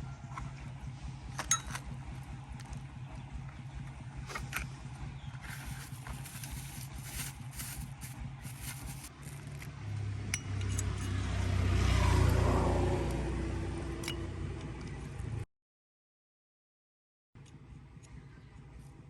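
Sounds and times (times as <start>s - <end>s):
low-pitched engine running: 0.0s - 10.1s.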